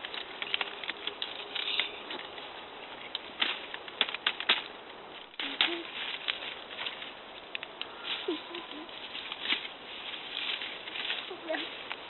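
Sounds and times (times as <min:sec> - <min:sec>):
dry twigs crackling and snapping: 0:00.0 - 0:12.0.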